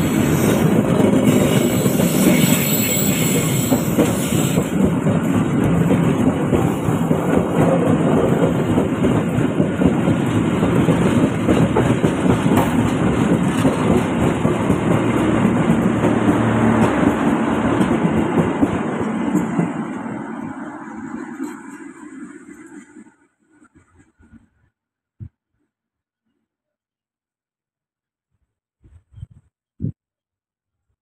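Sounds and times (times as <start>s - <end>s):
train wheels clattering on rails: 0.0s - 23.0s.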